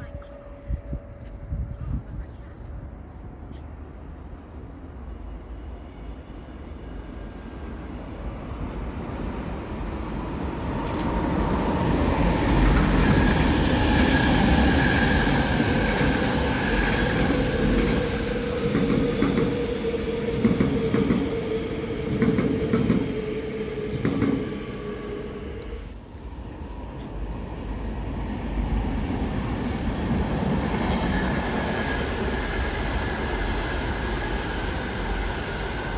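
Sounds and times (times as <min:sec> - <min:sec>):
passenger train passing: 0:00.0 - 0:35.9
train whining tone: 0:06.4 - 0:26.2.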